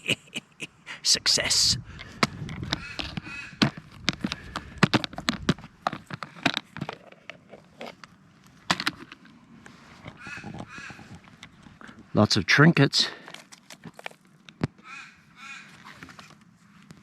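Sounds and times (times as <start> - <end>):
bird cawing: 1.9 - 4.8, 10.1 - 11.4, 14.8 - 16.1
container clicks and rustles: 3.8 - 9.3.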